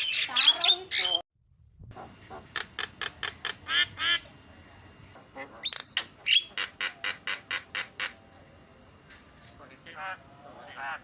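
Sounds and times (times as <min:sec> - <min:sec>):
bird harsh squawks: 0:02.3 - 0:04.2, 0:05.3 - 0:08.2
bird sharp chattering notes: 0:05.3 - 0:08.2.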